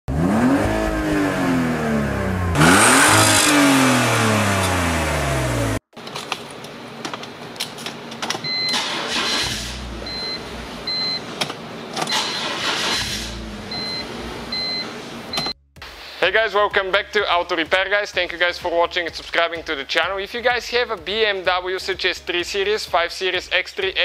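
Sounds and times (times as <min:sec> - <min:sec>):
car engine revving: 0:00.1 - 0:05.8, 0:08.7 - 0:11.0, 0:11.6 - 0:15.4.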